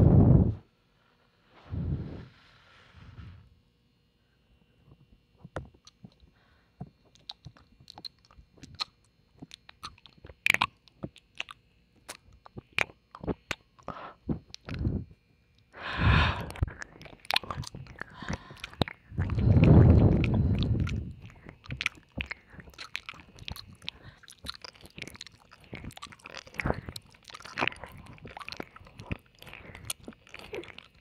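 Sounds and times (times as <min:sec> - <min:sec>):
wet mouth sounds: 0:07.0 - 0:15.2, 0:15.8 - 0:31.0.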